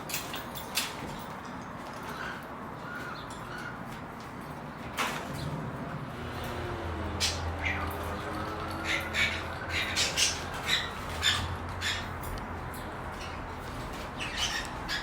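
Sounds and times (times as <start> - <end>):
parrot squawking: 7.2 - 12.3, 14.2 - 15.0.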